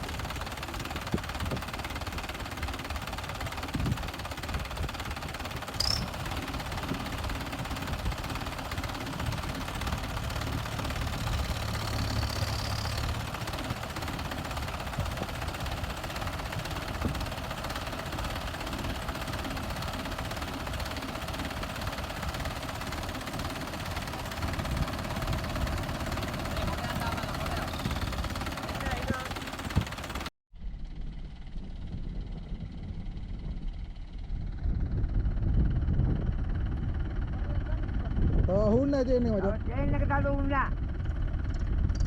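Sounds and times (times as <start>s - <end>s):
tractor diesel engine idling: 0.0s - 30.3s.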